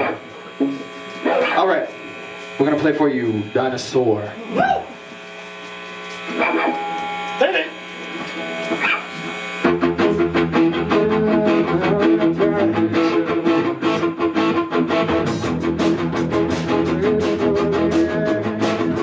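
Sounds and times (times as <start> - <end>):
electric guitar notes with bend: 0.0 - 19.0
rock band playing: 6.3 - 9.0, 9.6 - 19.0.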